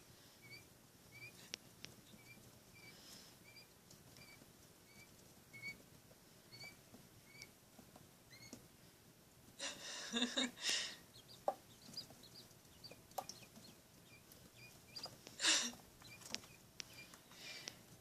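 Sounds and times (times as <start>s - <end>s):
quail chick peeping: 0.2s - 8.7s, 11.0s - 18.0s
light taps: 11.4s - 13.7s.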